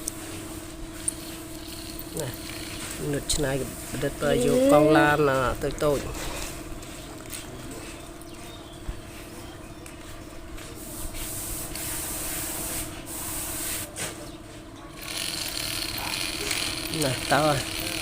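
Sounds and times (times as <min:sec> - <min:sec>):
small motor humming: 0:00.0 - 0:08.3, 0:15.0 - 0:18.0.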